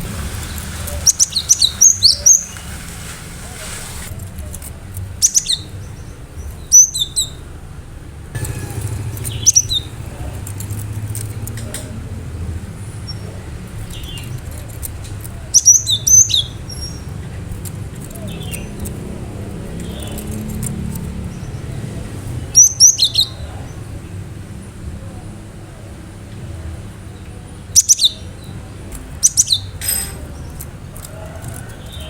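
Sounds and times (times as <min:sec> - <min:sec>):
bird calling in sharp whistled notes: 0:00.4 - 0:02.6.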